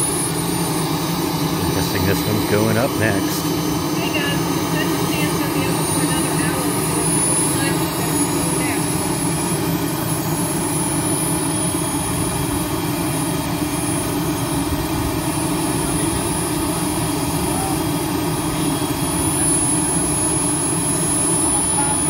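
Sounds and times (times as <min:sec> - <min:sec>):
model jet turbine engine running: 0:00.0 - 0:22.0.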